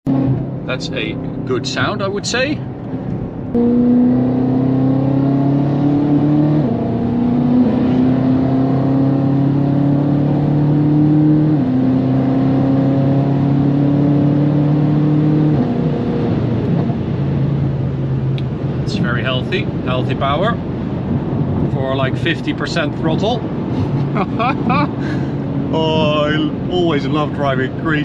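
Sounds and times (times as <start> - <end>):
car engine accelerating with upshifts: 0.0 - 28.0.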